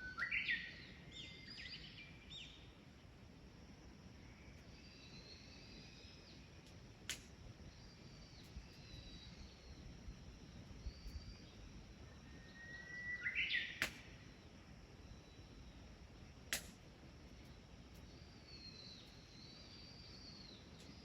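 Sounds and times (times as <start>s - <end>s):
sharp pops: 13.8s - 14.1s, 16.5s - 16.8s.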